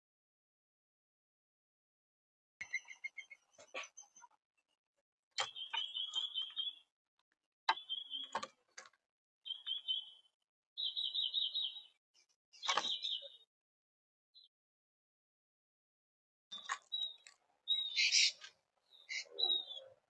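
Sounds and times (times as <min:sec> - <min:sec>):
woodpeckers trilling calls: 0:02.6 - 0:04.2, 0:05.4 - 0:06.8, 0:07.7 - 0:08.4, 0:09.5 - 0:10.2, 0:12.6 - 0:13.4, 0:16.9 - 0:20.0.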